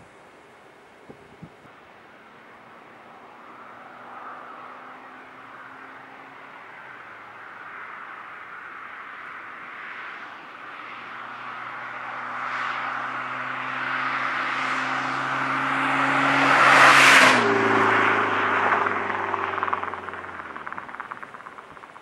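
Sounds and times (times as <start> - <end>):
tyre and wind noise: 1.0 - 1.8
car exhaust driving past: 2.2 - 22.0.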